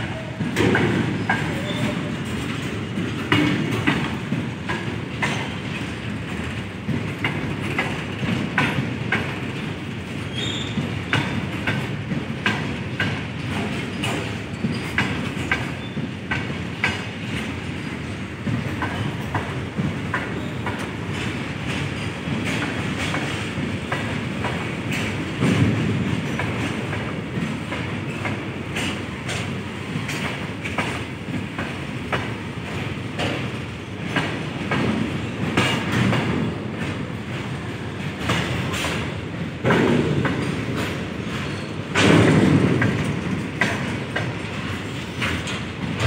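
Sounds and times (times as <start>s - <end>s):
train wheels rumbling on rails: 0.0s - 46.0s
wheels clicking over rail joints: 0.0s - 46.0s.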